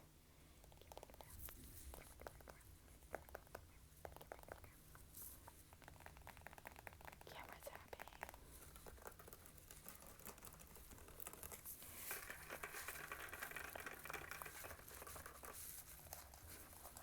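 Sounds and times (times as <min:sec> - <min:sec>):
crinkly scratching rustle: 0:08.5 - 0:17.0.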